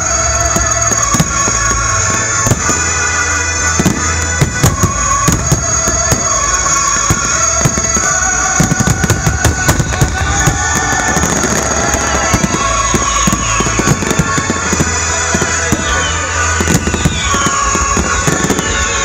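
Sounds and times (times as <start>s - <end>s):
fireworks bangs and crackling: 0.0s - 19.0s
loud music: 0.0s - 19.0s.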